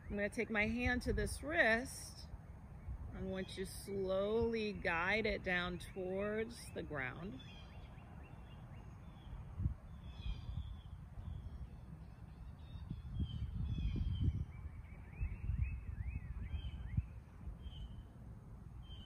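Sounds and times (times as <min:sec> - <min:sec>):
wind rumble on microphone: 0:00.0 - 0:19.0
birds chirping: 0:04.7 - 0:18.2, 0:18.8 - 0:19.0.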